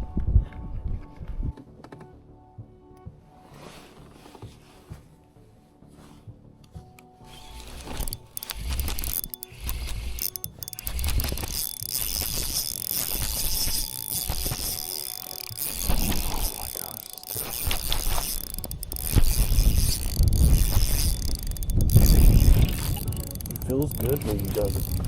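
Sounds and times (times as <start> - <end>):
fishing reel ratcheting whir: 7.3 - 25.0
wind buffeting microphone: 18.3 - 25.0.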